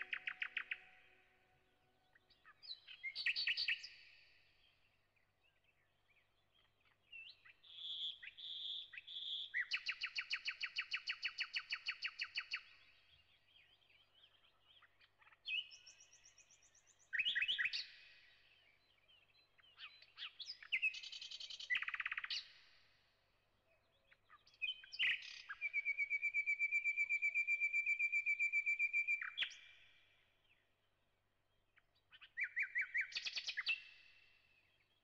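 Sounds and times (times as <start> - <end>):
songbird trilling and chirping: 0.0 - 1.0, 2.1 - 4.1, 6.5 - 12.8, 13.7 - 18.0, 18.8 - 22.5, 23.8 - 29.9, 32.1 - 34.0.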